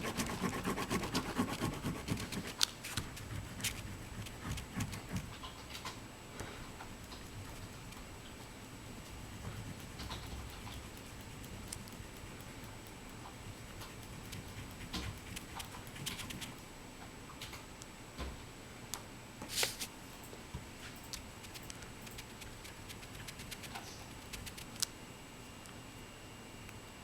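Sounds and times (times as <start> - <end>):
oil pastel scratching on paper: 0.0 - 5.5, 8.9 - 16.6, 21.4 - 24.8.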